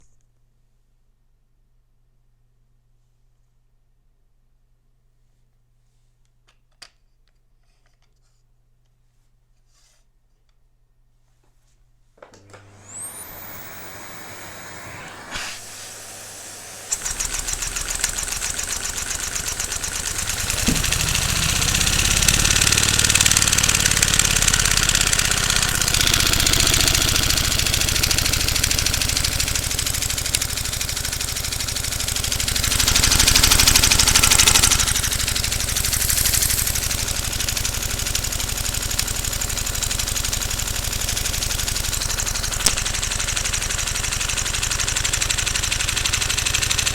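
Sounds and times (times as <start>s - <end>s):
vacuum engine running: 12.2s - 46.9s.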